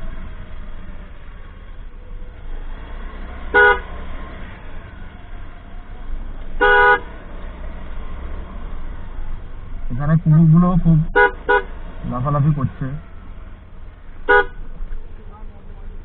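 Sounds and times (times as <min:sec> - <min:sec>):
motorcycle engine rumble: 0:00.0 - 0:16.0
vehicle horn honking: 0:03.5 - 0:03.9, 0:06.6 - 0:07.2, 0:11.0 - 0:13.0, 0:14.2 - 0:14.8.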